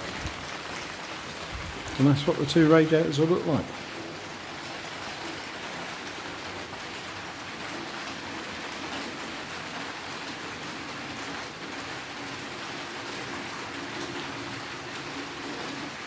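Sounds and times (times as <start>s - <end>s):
rain falling on roof: 0.0s - 16.0s.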